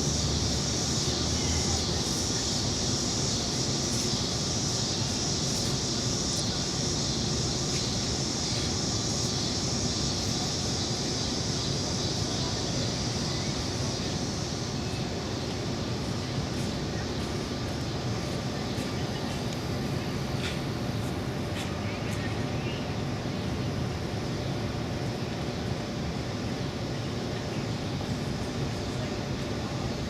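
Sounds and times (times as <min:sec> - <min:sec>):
bright hiss: 0:00.0 - 0:22.0.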